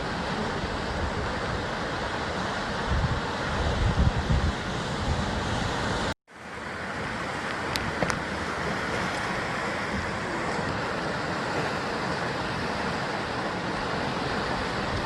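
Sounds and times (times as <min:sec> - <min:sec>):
wind rumble: 0:00.0 - 0:06.2
surf breaking on rocky coast: 0:00.0 - 0:15.0.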